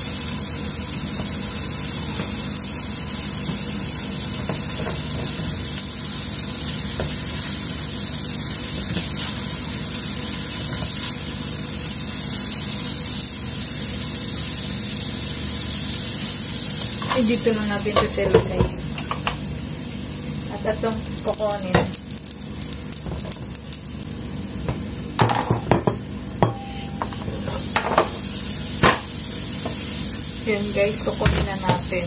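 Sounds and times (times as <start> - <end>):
food sizzling in a frying pan: 0.0 - 32.0.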